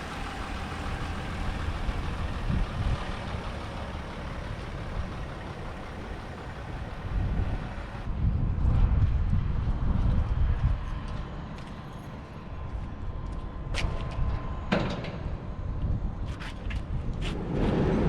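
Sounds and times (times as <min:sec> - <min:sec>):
engine running: 0:00.0 - 0:08.1.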